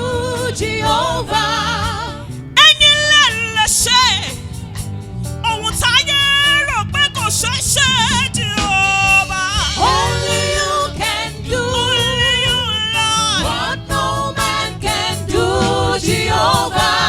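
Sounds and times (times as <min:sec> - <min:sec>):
person singing gospel: 0:00.0 - 0:04.5, 0:05.4 - 0:17.0
instrumental accompaniment: 0:00.0 - 0:17.0.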